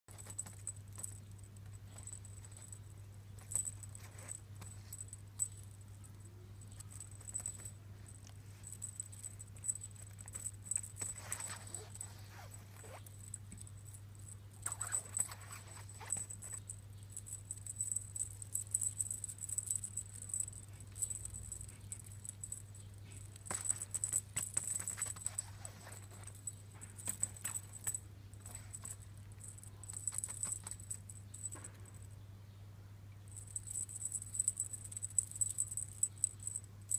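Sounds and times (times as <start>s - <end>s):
cat paws pattering and clicking: 0.1s - 32.1s
low electrical hum: 0.1s - 36.9s.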